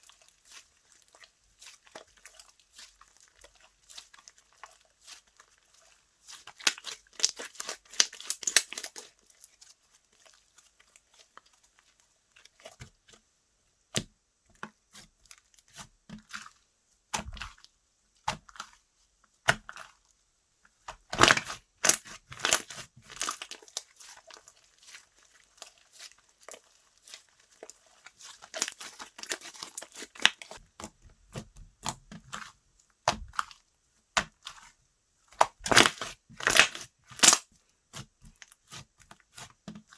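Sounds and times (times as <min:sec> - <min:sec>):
slime crackling and popping: 0:06.3 - 0:09.1, 0:21.0 - 0:30.6, 0:35.4 - 0:39.5.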